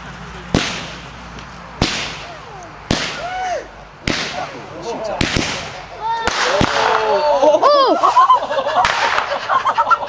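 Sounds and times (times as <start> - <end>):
firework reports with hiss: 0.5 - 7.1.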